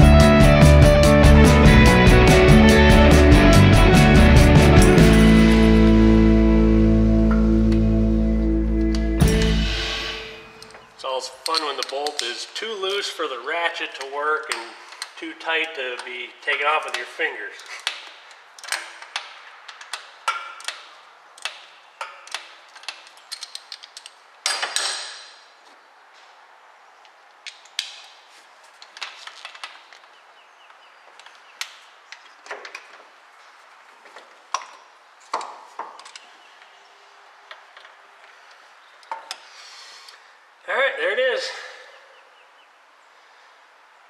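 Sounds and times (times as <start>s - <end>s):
hand tools clinking on metal: 11.4s - 18.0s.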